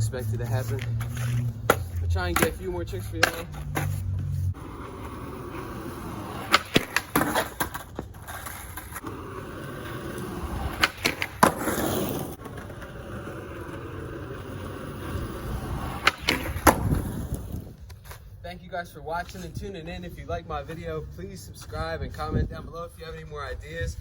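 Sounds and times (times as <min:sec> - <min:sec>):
skateboard wheels rolling on concrete: 0:00.0 - 0:24.0
skateboard grinding on ledge: 0:00.5 - 0:17.8
skateboard clacking: 0:00.6 - 0:04.0, 0:04.6 - 0:17.6.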